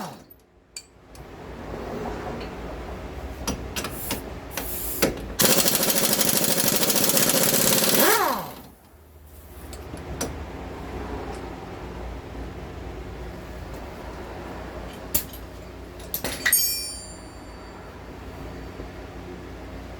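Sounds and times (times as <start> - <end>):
impact wrench hammering: 5.4 - 8.7.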